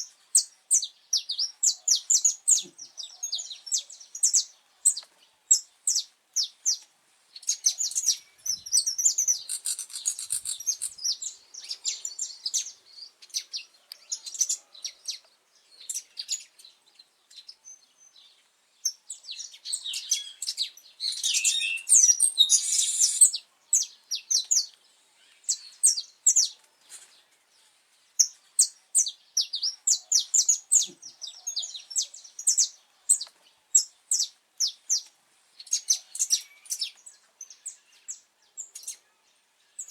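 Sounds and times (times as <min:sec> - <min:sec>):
finch singing chirps and trills: 0:07.4 - 0:26.6, 0:28.2 - 0:39.0.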